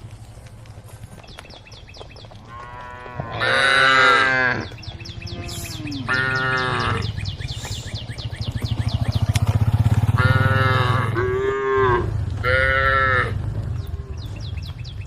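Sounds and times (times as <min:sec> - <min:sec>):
cows mooing: 0:02.5 - 0:07.4, 0:09.9 - 0:14.6
rapid high chirping: 0:04.8 - 0:09.7.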